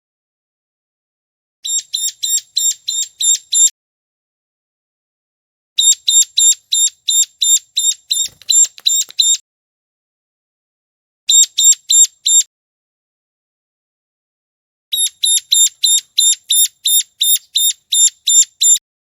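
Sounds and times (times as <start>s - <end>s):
bird high-pitched chipping notes: 1.6s - 3.7s, 5.8s - 9.4s, 11.3s - 12.5s, 14.9s - 18.8s.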